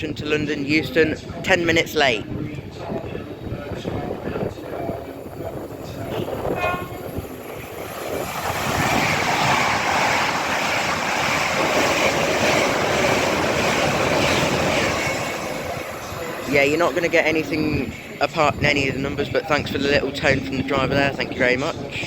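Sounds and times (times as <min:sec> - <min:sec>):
trains passing with rushing wheels: 0:00.0 - 0:22.0
train horn short tone: 0:06.2 - 0:07.1.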